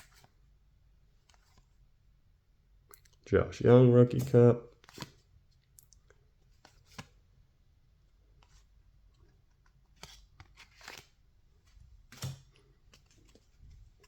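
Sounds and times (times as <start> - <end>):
trading cards clicking and rustling: 4.1 - 7.2, 9.3 - 14.0.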